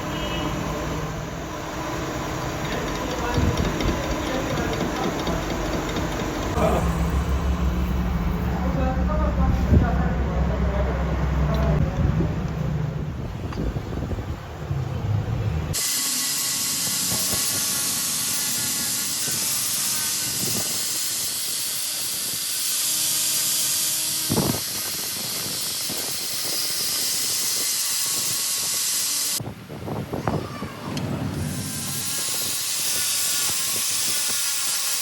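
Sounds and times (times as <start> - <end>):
knocks: 2.7 - 6.6
loud pressurized hiss: 15.8 - 29.4, 31.4 - 35.0.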